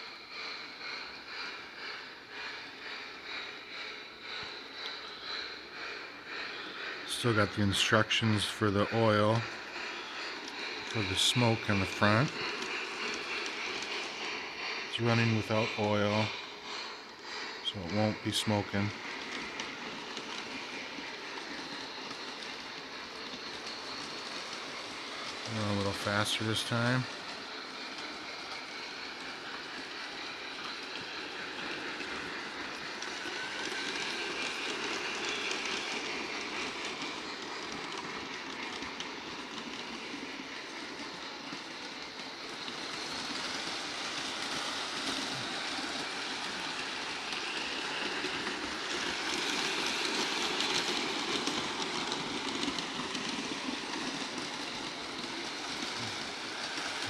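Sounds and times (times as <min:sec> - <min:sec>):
wheel clatter on rails: 0:17.7 - 0:57.0.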